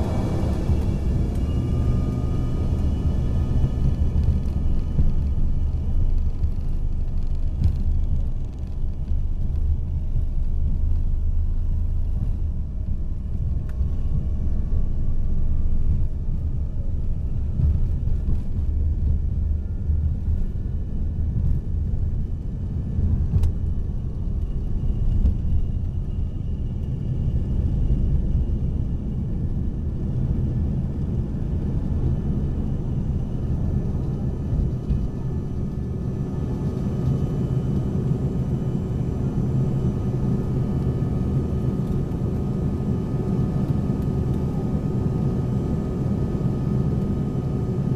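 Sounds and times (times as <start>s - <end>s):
faint steady whines: 0.0s - 47.9s
jet cabin engine rumble: 0.0s - 47.9s.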